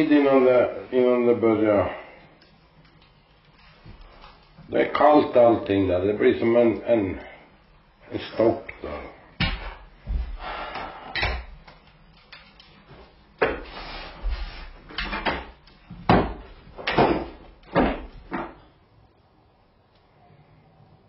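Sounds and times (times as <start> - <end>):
rustling: 1.8 - 5.8.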